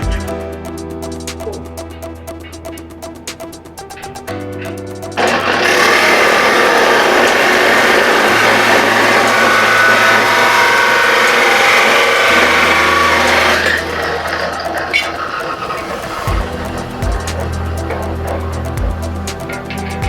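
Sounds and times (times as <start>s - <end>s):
background music: 0.0s - 20.0s
angle grinder whining on steel: 5.2s - 20.0s.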